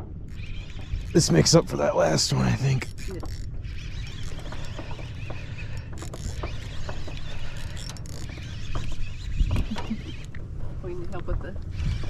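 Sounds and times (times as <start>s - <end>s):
fishing reel clicking: 2.8s - 9.3s.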